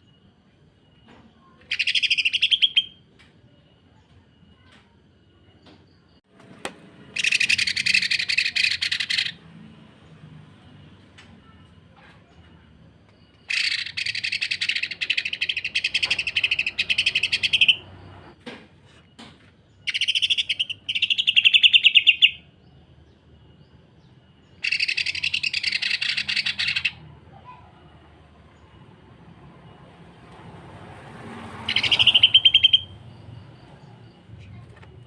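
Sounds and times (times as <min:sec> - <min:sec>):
bird rattling trill: 0:07.2 - 0:09.4, 0:13.5 - 0:17.8, 0:31.7 - 0:32.9.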